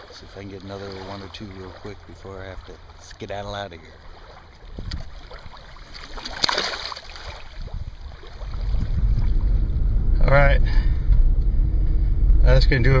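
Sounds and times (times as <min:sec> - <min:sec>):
wind rumble on microphone: 0:00.0 - 0:06.5, 0:07.1 - 0:13.0
lake water splashing: 0:00.0 - 0:09.8.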